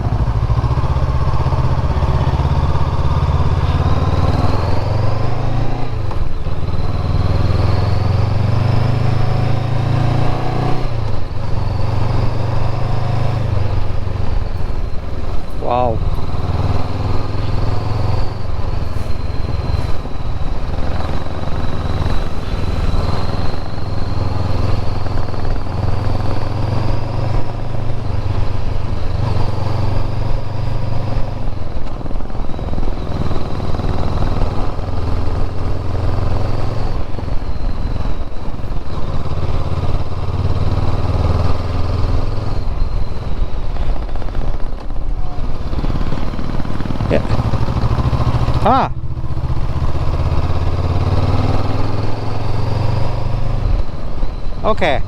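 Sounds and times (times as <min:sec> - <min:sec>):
motorcycle engine running: 0:00.0 - 0:55.0
wind rush: 0:42.2 - 0:50.8.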